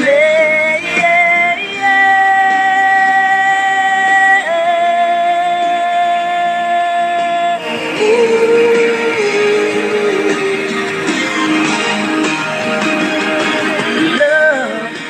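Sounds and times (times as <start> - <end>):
singer holding long notes: 0.0 - 15.0
rock band backing: 7.2 - 15.0.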